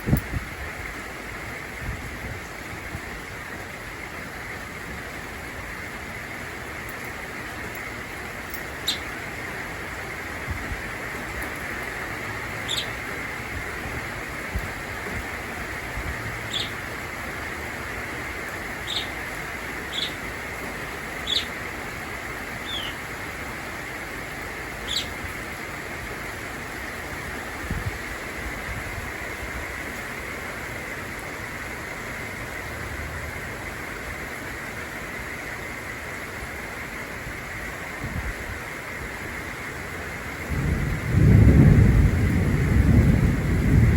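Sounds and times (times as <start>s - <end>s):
rain hiss: 0.0s - 43.9s
budgerigar chirps: 8.8s - 9.1s, 12.6s - 12.9s, 16.5s - 16.8s, 18.8s - 19.2s, 19.9s - 20.2s, 21.2s - 21.6s, 22.6s - 23.0s, 24.8s - 25.2s.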